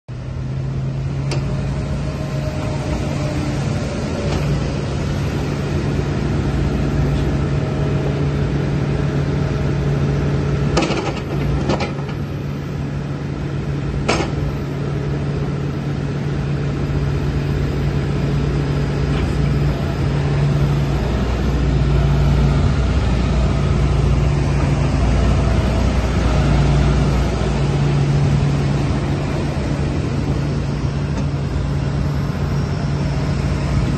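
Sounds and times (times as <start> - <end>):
excavator diesel engine running: 0.1 - 33.9.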